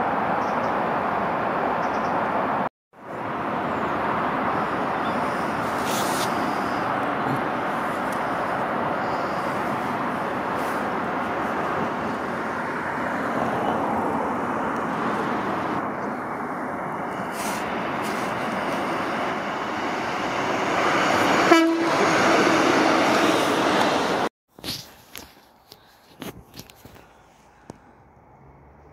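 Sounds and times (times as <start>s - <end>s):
diesel train passing: 0.0s - 24.3s
train horn toot: 21.3s - 22.6s.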